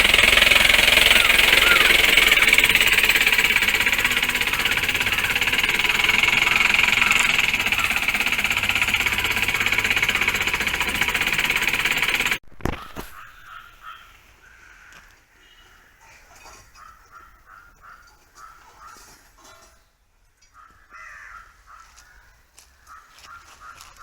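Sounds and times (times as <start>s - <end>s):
motor running with flutter: 0.0s - 12.4s.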